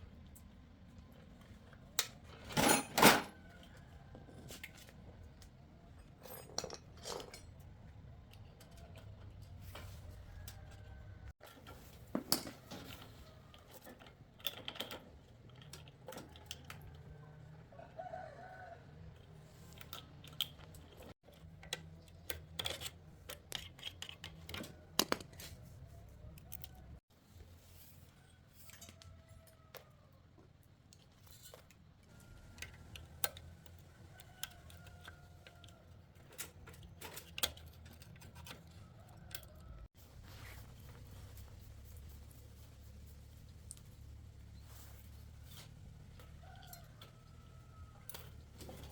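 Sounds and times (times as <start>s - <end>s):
hand tools clicking and knocking: 19.8s - 27.0s.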